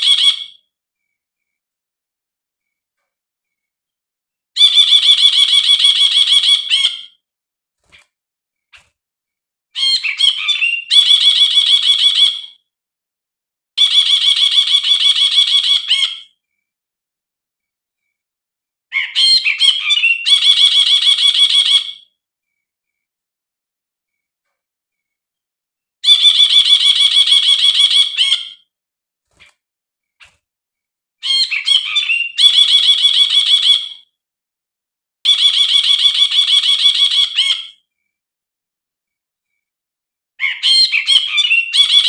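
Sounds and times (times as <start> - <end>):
bulbul trilling song: 0.0 - 1.5, 4.6 - 7.2, 9.8 - 12.7, 18.9 - 23.0, 26.0 - 28.7, 31.2 - 34.2.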